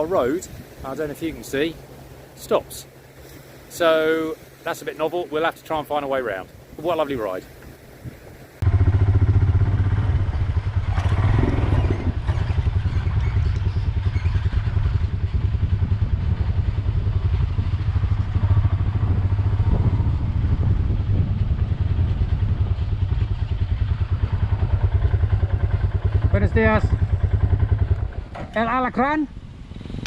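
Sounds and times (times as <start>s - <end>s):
motorcycle engine throbbing: 8.6s - 29.8s.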